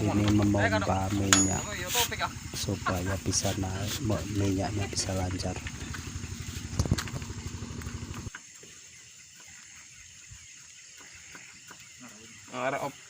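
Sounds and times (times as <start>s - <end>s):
small ticks: 5.5s - 12.4s.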